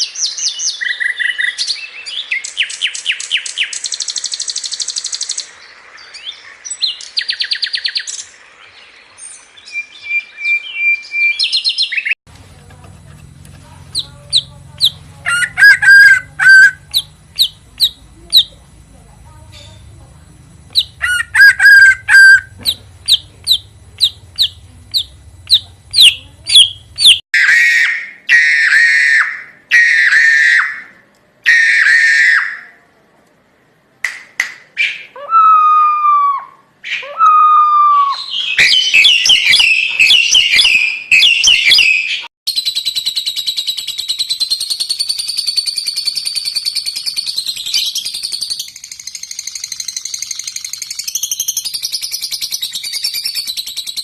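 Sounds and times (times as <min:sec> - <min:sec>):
fast dense bird chatter: 0:11.4 - 0:27.2, 0:42.7 - 0:54.0
high buzzing bird trill: 0:13.7 - 0:30.9, 0:37.0 - 0:54.0
harsh buzzy bird calls: 0:13.7 - 0:32.7, 0:34.8 - 0:54.0
rising bird whistles: 0:34.8 - 0:54.0
slurred bird whistles: 0:34.8 - 0:54.0.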